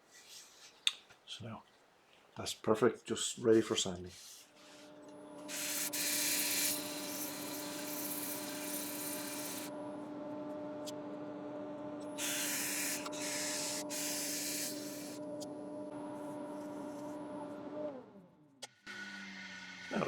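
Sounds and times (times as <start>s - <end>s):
wood lathe humming: 4.3s - 10.2s, 12.0s - 18.2s, 18.9s - 20.0s
sandpaper hissing on spinning wood: 5.5s - 9.7s, 12.2s - 15.2s.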